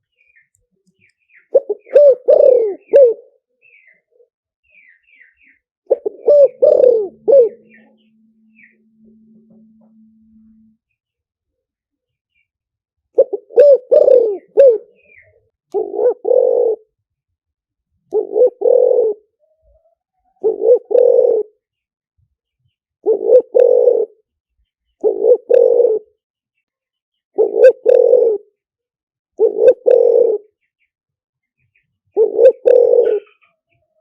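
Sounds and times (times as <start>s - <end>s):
dove cooing: 1.5s - 3.4s, 5.9s - 9.9s, 13.2s - 17.0s, 18.1s - 21.6s, 23.0s - 24.2s, 25.0s - 26.2s, 27.4s - 28.6s, 29.4s - 30.6s, 32.1s - 33.6s.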